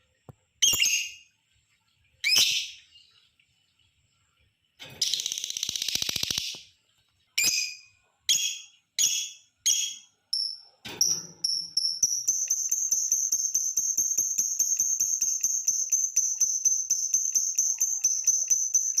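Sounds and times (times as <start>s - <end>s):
lovebird chattering and trilling: 5.0s - 6.6s, 7.4s - 10.6s, 11.4s - 19.0s.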